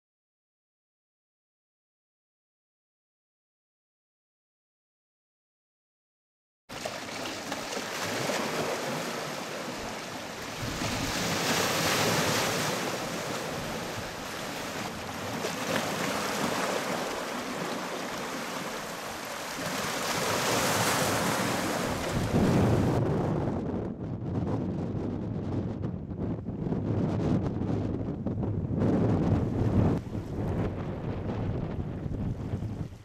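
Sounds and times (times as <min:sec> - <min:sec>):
strong wind buffeting microphone: 0:10.5 - 0:17.3, 0:20.6 - 0:33.0.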